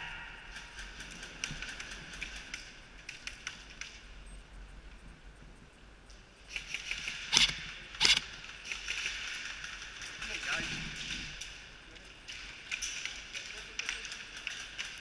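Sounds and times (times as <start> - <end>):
airsoft gunfire bursts: 7.2 - 9.0.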